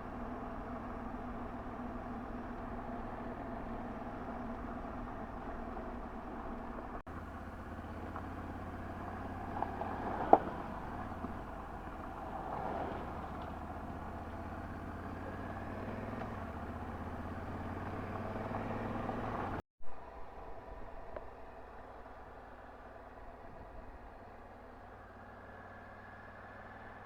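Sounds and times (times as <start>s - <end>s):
motorcycle engine running: 0.1s - 19.6s.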